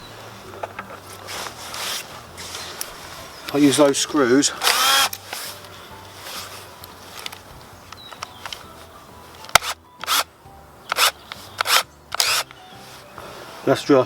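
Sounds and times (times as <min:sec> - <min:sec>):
scraping rustles: 0:00.0 - 0:10.2
sharp click: 0:09.5 - 0:10.3, 0:10.9 - 0:12.6.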